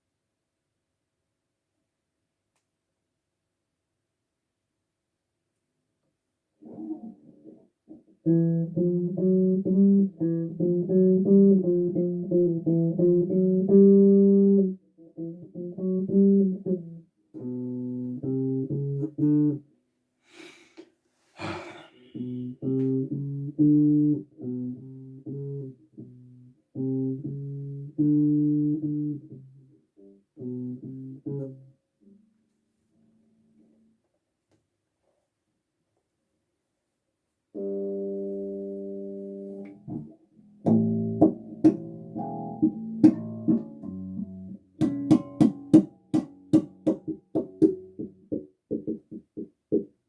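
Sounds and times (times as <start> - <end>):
bass guitar plucked notes: 8.2 - 19.6, 22.2 - 29.7, 30.4 - 31.7, 37.6 - 49.2.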